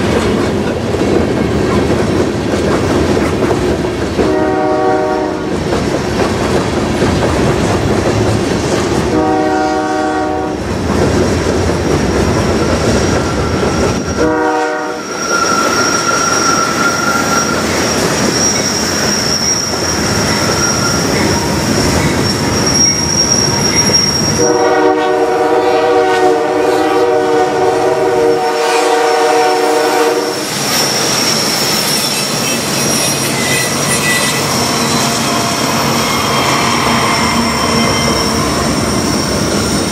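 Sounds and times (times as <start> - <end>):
train wheels clacking on rail joints: 0.0 - 9.4, 10.6 - 14.4
locomotive air horn blasts: 4.2 - 5.5, 9.1 - 10.6, 14.2 - 15.8, 24.4 - 30.4
thin high wheel squeal: 12.5 - 14.3, 14.9 - 24.6, 30.4 - 39.9.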